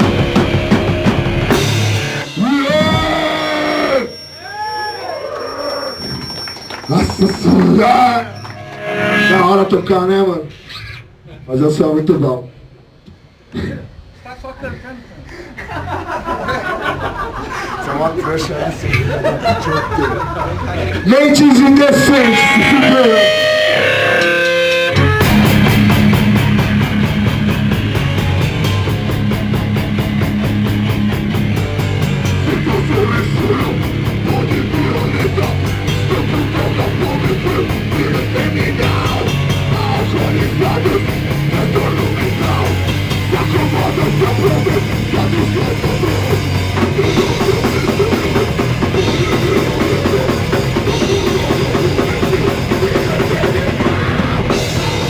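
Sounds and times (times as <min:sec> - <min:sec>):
live rock band playing: 0:00.0 - 0:04.5, 0:21.0 - 0:55.0.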